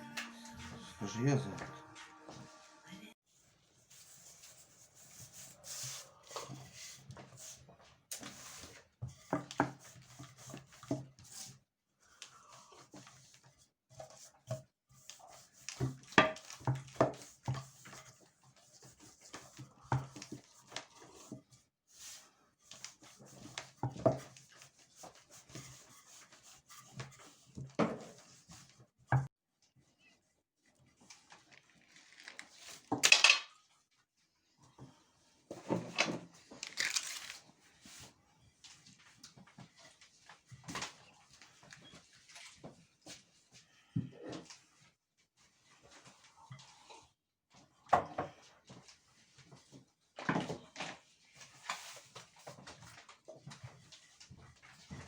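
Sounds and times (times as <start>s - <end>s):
kitchen utensils and dishes clattering: 33.0s - 33.6s.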